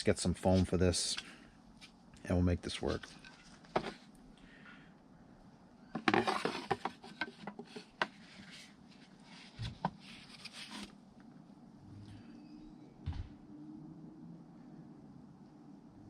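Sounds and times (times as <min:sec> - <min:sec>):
parts clattering on workbench: 0:03.7 - 0:04.0, 0:06.0 - 0:08.1
rustling: 0:06.0 - 0:11.0.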